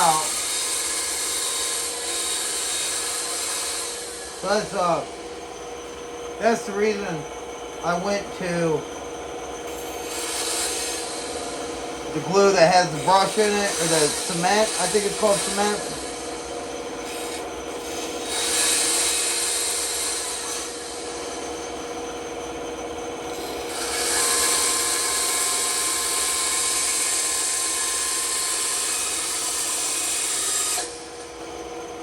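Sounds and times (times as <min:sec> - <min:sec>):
wood rasping against tool: 0:00.0 - 0:05.3, 0:09.6 - 0:21.2, 0:23.3 - 0:31.2
woodworking power tool humming: 0:00.0 - 0:32.0.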